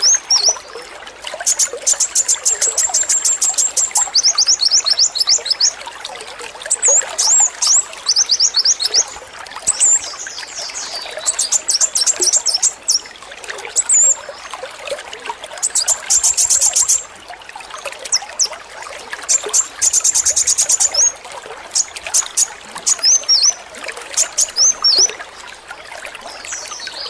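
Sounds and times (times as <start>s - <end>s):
bird singing rattling trills: 0.0s - 0.6s, 1.4s - 5.8s, 6.7s - 13.1s, 15.6s - 17.1s, 19.3s - 25.2s
running water trickling: 0.0s - 27.0s.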